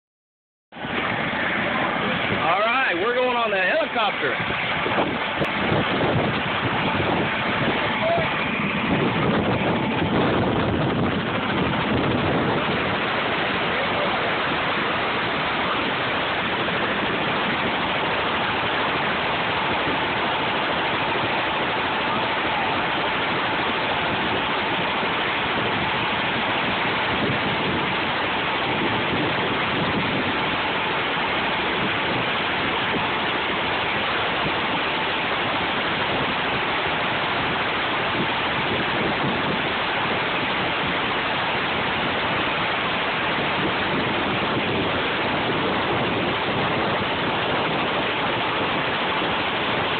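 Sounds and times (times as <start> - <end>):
helicopter rushing roar: 0.9 - 19.6.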